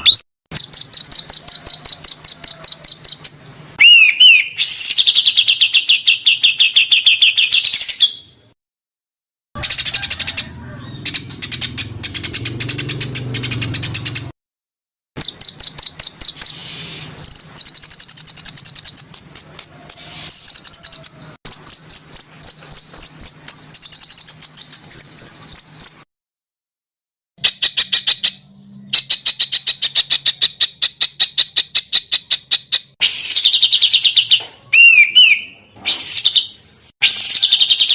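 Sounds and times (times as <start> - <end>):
songbird high chirps: 0.0 - 8.4, 15.2 - 26.0.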